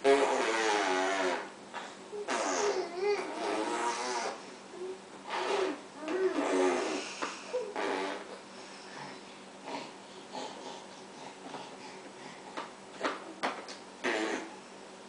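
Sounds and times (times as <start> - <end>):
short breathy vocal noises: 1.7 - 13.1.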